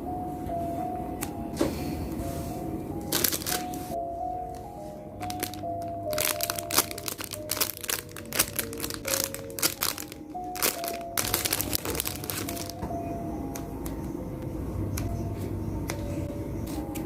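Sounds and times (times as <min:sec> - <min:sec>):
background music simple melody: 0:00.0 - 0:17.0
plastic packaging crinkling: 0:03.1 - 0:04.0, 0:05.2 - 0:12.8.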